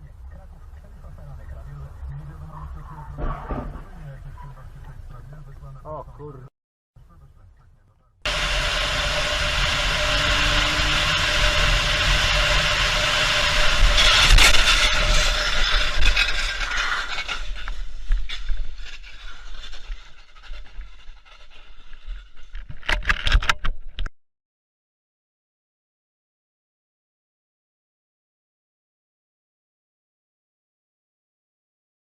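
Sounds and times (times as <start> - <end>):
road and engine noise: 0.0 - 17.4.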